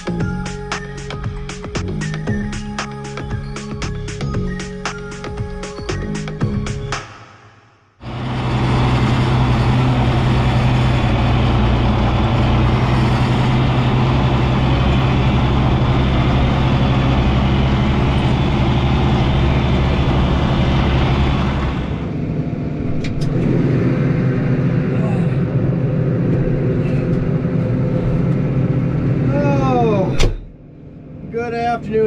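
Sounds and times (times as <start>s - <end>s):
tractor engine running: 8.0s - 32.0s.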